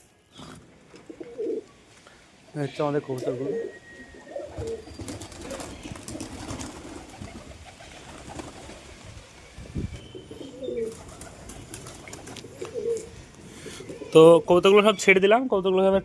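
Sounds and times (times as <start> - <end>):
pigeons cooing: 0.3 - 1.8, 3.1 - 9.4, 10.0 - 14.5.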